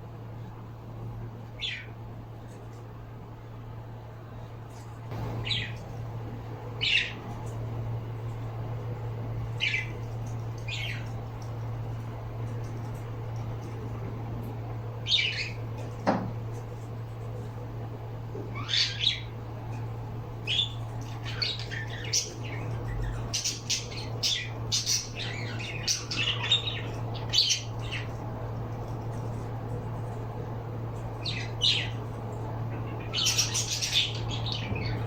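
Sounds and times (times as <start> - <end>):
steady low hum: 0.0 - 35.0
pet birds chirping and squawking: 1.6 - 2.0, 5.2 - 6.0, 6.8 - 7.6, 9.5 - 11.5, 15.0 - 15.9, 18.4 - 28.4, 29.0 - 35.0.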